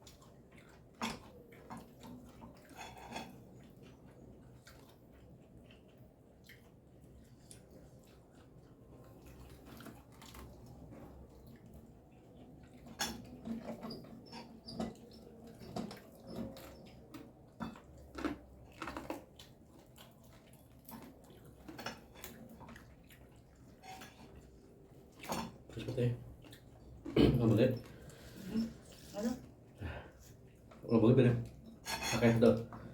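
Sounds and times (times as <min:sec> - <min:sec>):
quiet chewing: 0:00.0 - 0:32.9
dishes clattering: 0:31.7 - 0:32.8.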